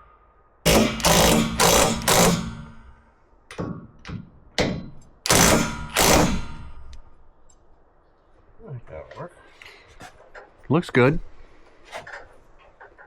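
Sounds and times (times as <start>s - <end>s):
impact wrench bursts: 0.7s - 3.0s, 5.3s - 7.0s.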